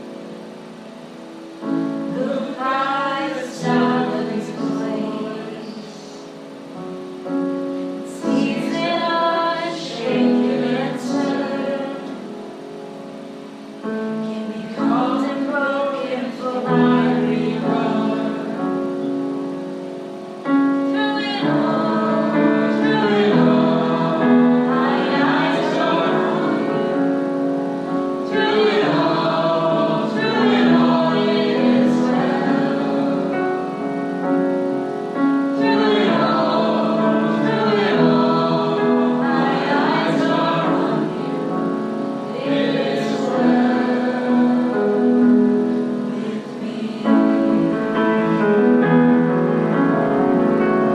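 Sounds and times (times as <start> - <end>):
group singing a gospel song: 2.1 - 6.2, 8.1 - 12.2, 14.6 - 18.8, 20.9 - 27.4, 28.2 - 33.8, 35.5 - 45.5, 46.1 - 48.6.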